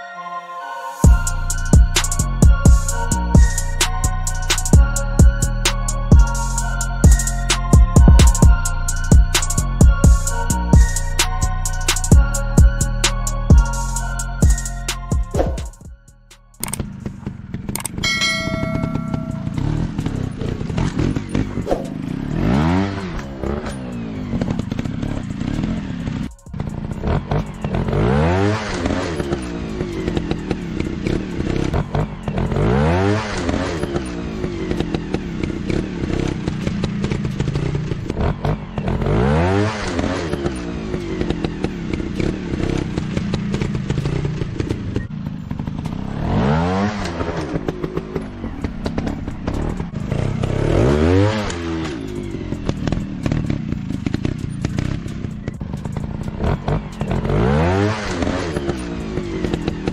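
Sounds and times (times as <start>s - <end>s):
dirt bike engines revving: 16.6s - 59.9s.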